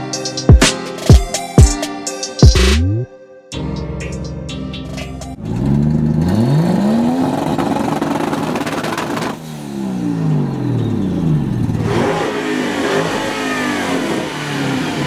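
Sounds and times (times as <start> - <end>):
car engine revving: 5.4 - 15.0.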